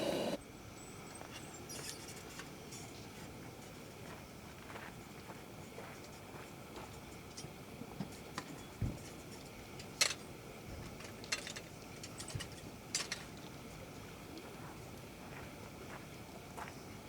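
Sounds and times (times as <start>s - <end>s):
faint steady background noise: 0.0s - 17.0s.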